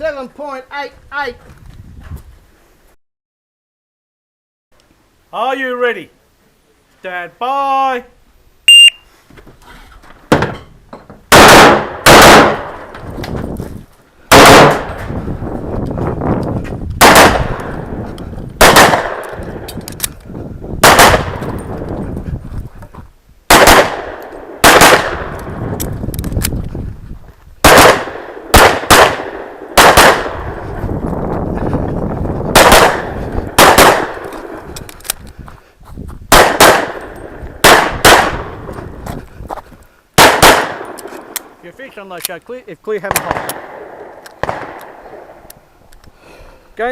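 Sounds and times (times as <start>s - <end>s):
shot timer beep: 8.7s - 9.1s
pistol shots: 11.3s - 12.9s, 14.3s - 15.0s, 17.0s - 17.8s, 18.6s - 19.7s, 20.8s - 21.6s, 23.5s - 25.5s, 27.6s - 30.5s, 32.5s - 34.6s, 36.3s - 38.6s, 40.2s - 41.5s, 43.1s - 45.4s.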